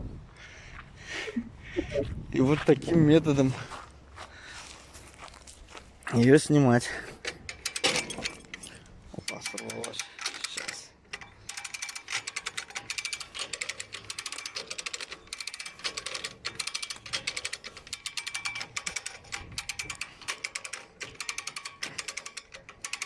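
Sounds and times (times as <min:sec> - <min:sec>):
winch ratchet clicking: 0:07.2 - 0:23.0.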